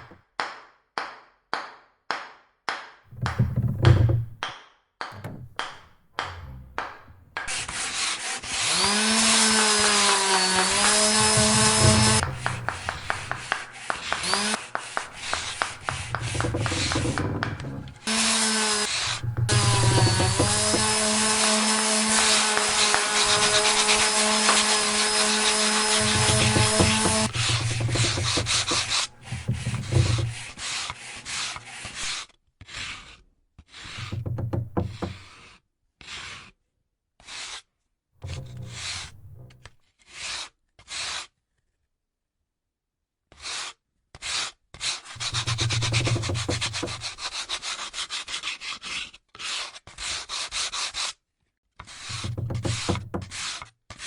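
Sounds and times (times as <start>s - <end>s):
abrasive rubbing on guitar wood: 3.1s - 4.4s, 5.2s - 30.8s, 33.9s - 35.3s, 38.2s - 39.7s, 45.2s - 47.3s, 52.1s - 53.4s
sharp knocks: 3.1s - 8.0s, 8.8s - 30.7s, 33.9s - 35.3s, 38.2s - 39.7s, 45.2s - 47.2s, 52.1s - 53.4s
wood being sanded: 5.2s - 30.7s, 45.2s - 47.2s, 52.1s - 53.4s.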